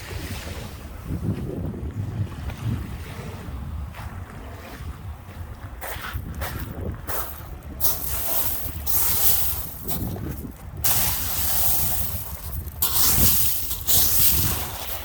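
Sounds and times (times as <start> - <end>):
wind buffeting microphone: 0.0 - 15.0
waves washing onto beach: 7.1 - 15.0.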